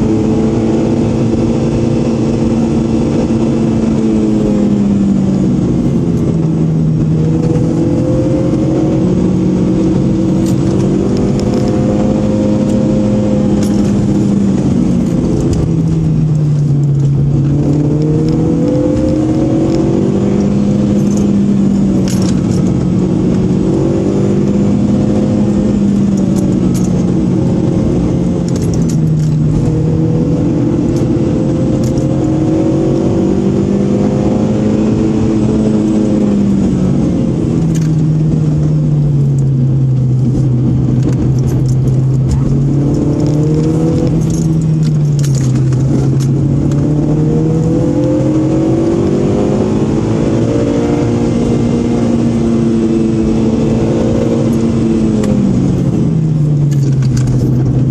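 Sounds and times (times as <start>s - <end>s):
car engine revving: 0.0s - 57.9s
light rattling clicks: 22.0s - 22.9s, 26.0s - 27.1s, 28.4s - 29.7s, 37.6s - 38.1s, 39.3s - 46.9s, 56.6s - 57.9s.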